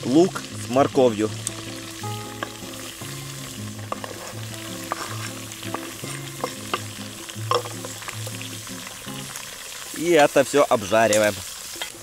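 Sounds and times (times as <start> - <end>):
background music: 0.0 - 9.4
food sizzling in oil: 0.0 - 12.0
knife scraping cutting board: 3.9 - 5.4.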